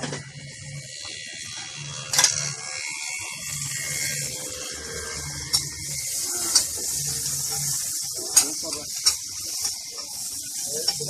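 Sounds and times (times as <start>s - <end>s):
food sizzling on a hot griddle: 0.0s - 11.0s
metal spatula clinking on griddle: 6.5s - 11.0s.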